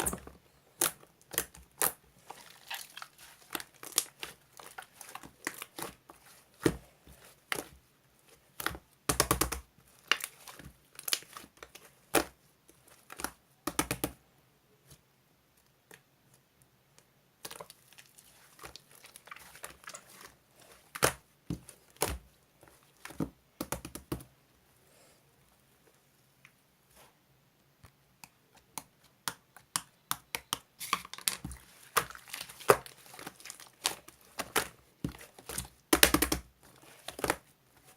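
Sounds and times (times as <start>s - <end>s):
crinkling: 0.0s - 13.4s, 14.8s - 23.4s, 30.7s - 37.9s.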